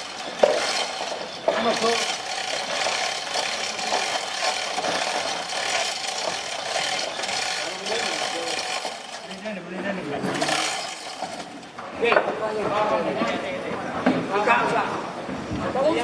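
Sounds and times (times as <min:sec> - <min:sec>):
hand tool rasping wood: 0:00.0 - 0:09.3, 0:10.3 - 0:11.5.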